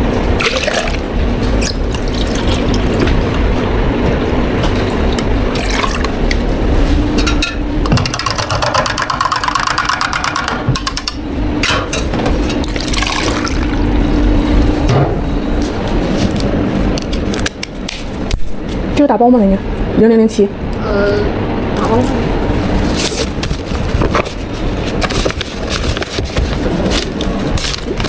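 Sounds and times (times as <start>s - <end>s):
machine hum: 0.0s - 28.0s
liquid pouring and splashing: 0.4s - 1.0s, 1.6s - 3.5s, 5.0s - 6.2s, 12.6s - 13.9s.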